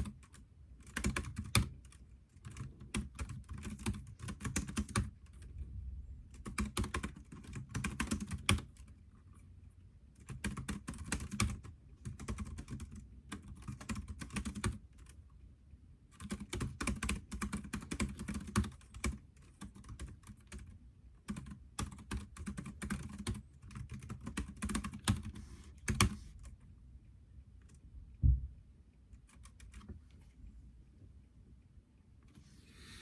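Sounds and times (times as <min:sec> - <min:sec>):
keyboard typing clicks: 0:00.0 - 0:05.5, 0:06.3 - 0:08.9, 0:10.2 - 0:15.2, 0:16.2 - 0:20.7, 0:21.3 - 0:26.6, 0:29.2 - 0:29.9
dull thump: 0:28.2 - 0:28.6.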